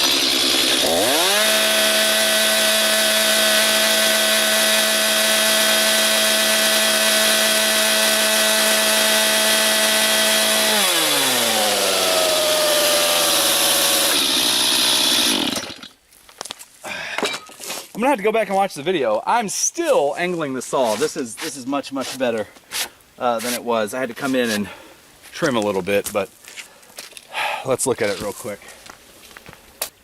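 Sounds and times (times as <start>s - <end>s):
chainsaw cutting wood: 0.0s - 16.0s, 20.9s - 23.6s.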